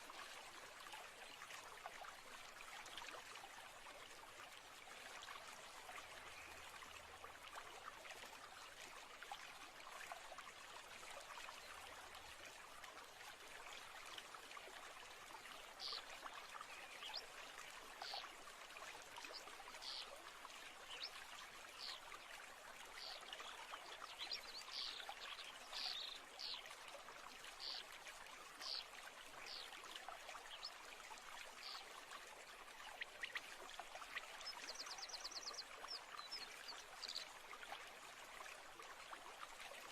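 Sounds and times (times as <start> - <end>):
faint flowing stream: 0.0 - 39.9.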